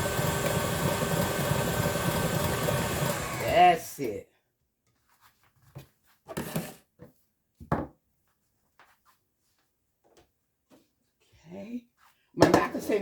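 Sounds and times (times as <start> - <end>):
kitchen items knocking and clunking: 12.4 - 13.0.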